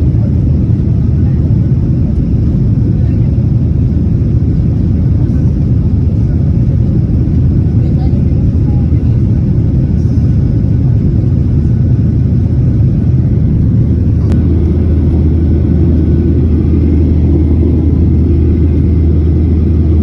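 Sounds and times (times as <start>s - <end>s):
jet engine rumble in cabin: 0.0s - 20.0s.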